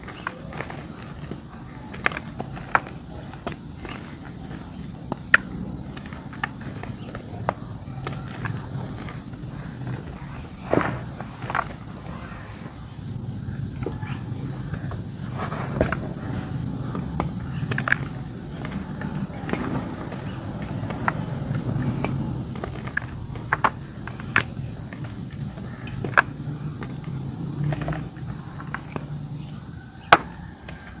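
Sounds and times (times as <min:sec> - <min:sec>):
dry clay crunching and crumbling: 0:00.0 - 0:31.0
steady low hum: 0:00.0 - 0:31.0.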